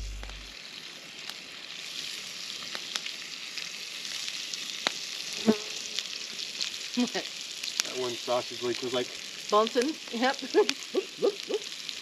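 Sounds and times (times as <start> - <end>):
brief pitched sound: 0.0 - 0.5
sausages sizzling in a pan: 0.0 - 12.0.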